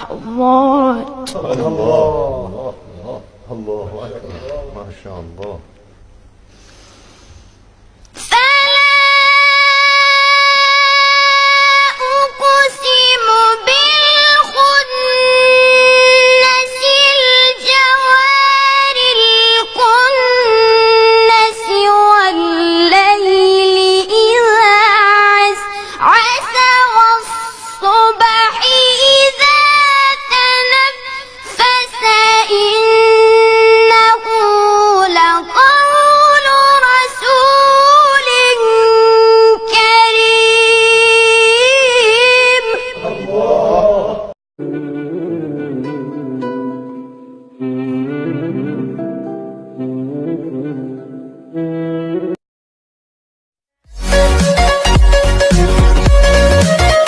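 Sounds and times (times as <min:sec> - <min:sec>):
boy chanting recitation: 0:00.0 - 0:05.6, 0:08.2 - 0:46.0
boy breathing: 0:06.5 - 0:07.7, 0:25.6 - 0:26.0.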